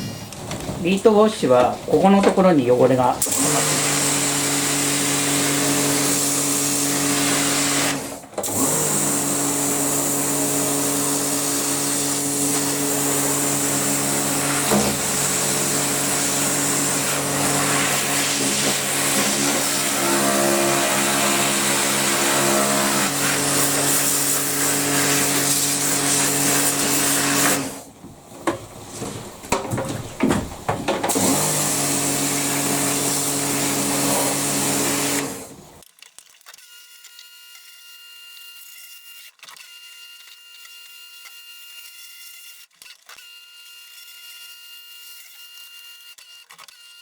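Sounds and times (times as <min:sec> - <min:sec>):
pressure washer pump humming: 0:00.0 - 0:35.8
water jet hissing on tub: 0:00.0 - 0:35.8.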